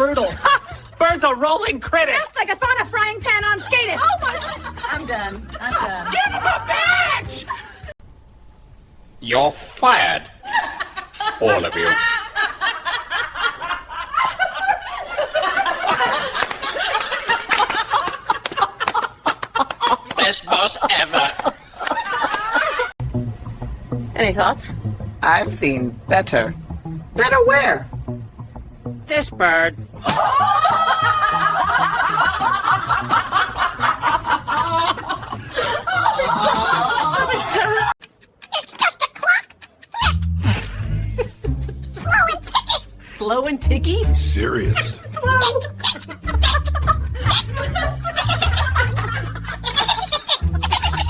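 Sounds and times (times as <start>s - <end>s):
people laughing: 2.4s - 7.9s, 10.4s - 23.0s, 29.9s - 42.9s, 44.4s - 51.0s.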